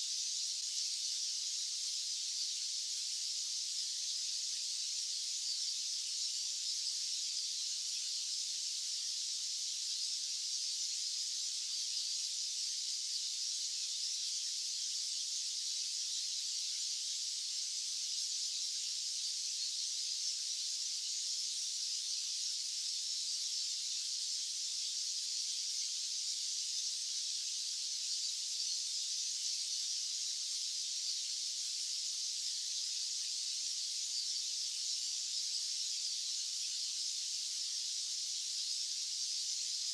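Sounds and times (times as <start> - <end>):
high-pitched white noise hiss: 0.0 - 39.9.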